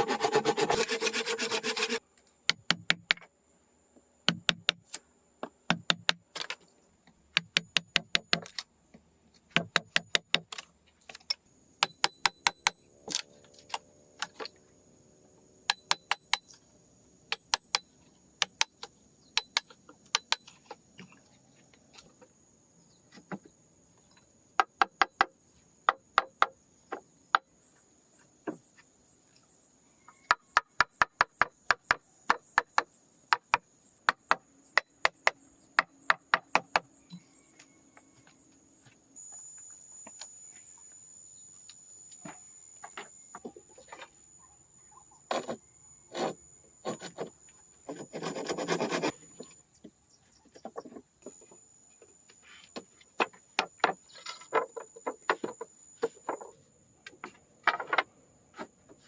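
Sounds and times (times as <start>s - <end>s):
hand tool taps and clicks: 7.3s - 8.6s.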